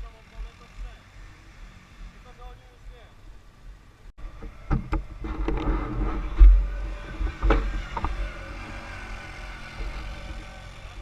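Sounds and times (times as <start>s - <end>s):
quad bike engine rumble: 0.0s - 11.0s
sharp knocks and clatters: 4.4s - 8.3s.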